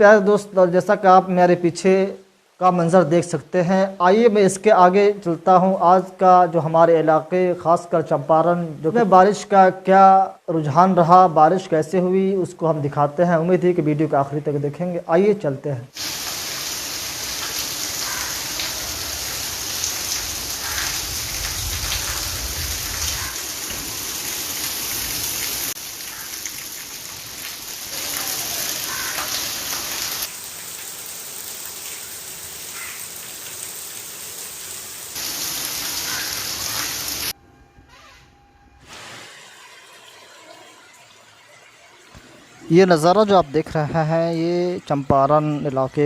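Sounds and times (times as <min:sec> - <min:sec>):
torrential rain pouring: 0:15.9 - 0:37.4.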